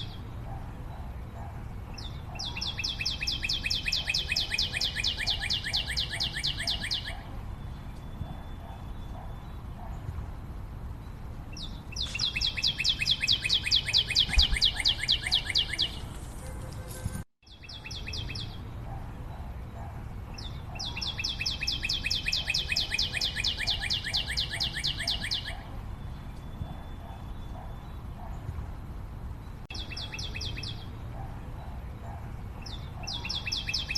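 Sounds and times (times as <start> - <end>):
bird singing rapid high notes: 2.0 - 9.7, 11.5 - 16.2, 20.4 - 28.1.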